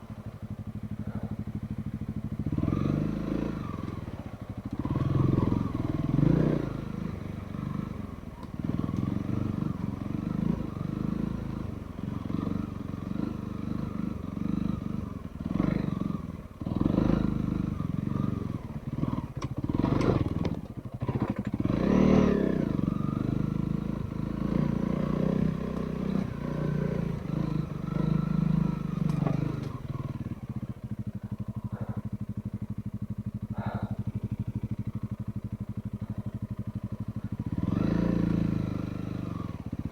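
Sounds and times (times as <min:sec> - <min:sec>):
motorcycle engine running: 0:00.0 - 0:39.9
motorcycle clattering over rough ground: 0:18.9 - 0:22.1, 0:25.6 - 0:38.9.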